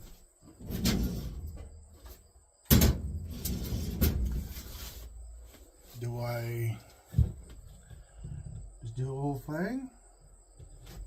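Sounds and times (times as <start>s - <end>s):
scraping and rustling: 0.0s - 2.3s, 2.9s - 6.1s.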